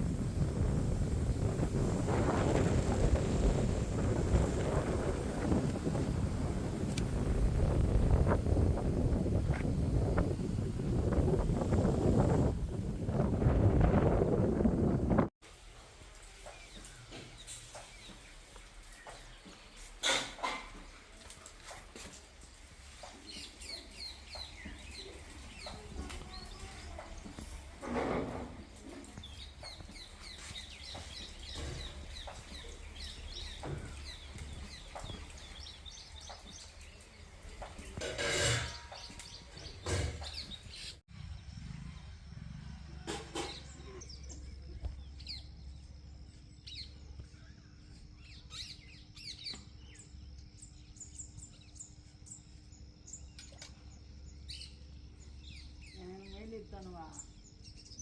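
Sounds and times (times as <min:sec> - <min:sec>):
small birds chirping: 0:16.2 - 0:27.8, 0:28.4 - 0:42.1, 0:43.3 - 0:58.0
low rumble: 0:41.1 - 0:47.2.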